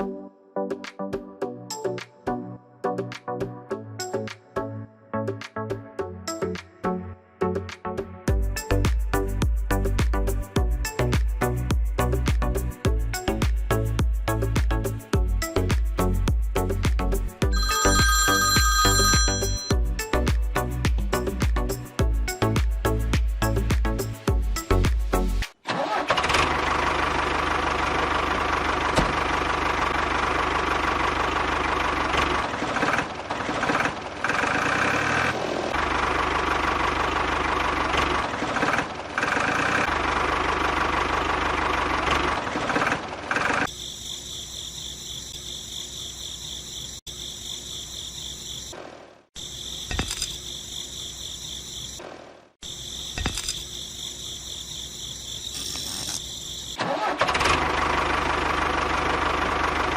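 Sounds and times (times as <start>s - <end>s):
high-pitched motor whine: 52.7s - 56.8s.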